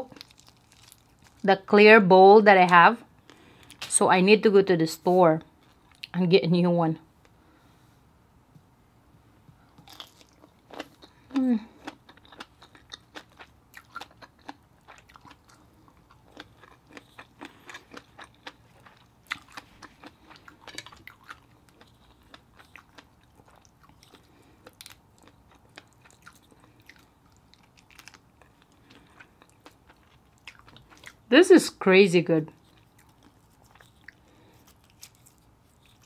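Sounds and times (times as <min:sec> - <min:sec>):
wet chewing and mouth smacks: 0:11.8 - 0:31.2, 0:32.6 - 0:36.0.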